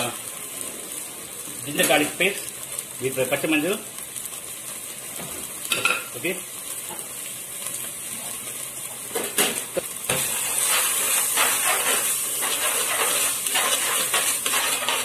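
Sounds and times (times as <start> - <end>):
spice paste sizzling in hot oil: 0.0 - 15.0
metal spoon scraping a pot: 10.6 - 15.0.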